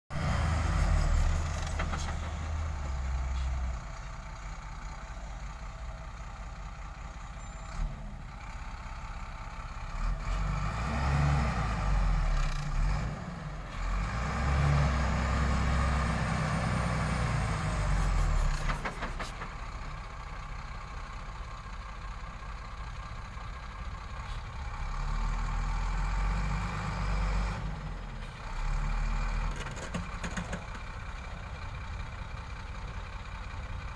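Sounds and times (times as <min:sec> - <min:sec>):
truck engine revving: 0:00.1 - 0:03.1, 0:09.9 - 0:18.6.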